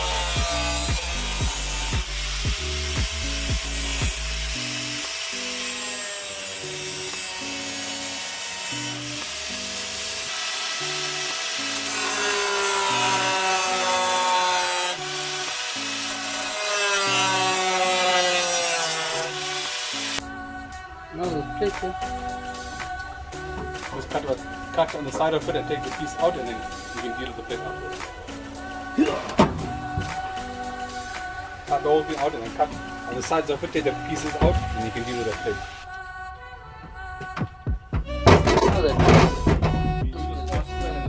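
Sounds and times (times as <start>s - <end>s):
background music with bass line: 0.0s - 5.7s, 19.2s - 35.9s, 36.7s - 41.0s
power tool cutting sheet metal: 0.0s - 20.3s, 21.8s - 35.8s, 38.3s - 39.6s.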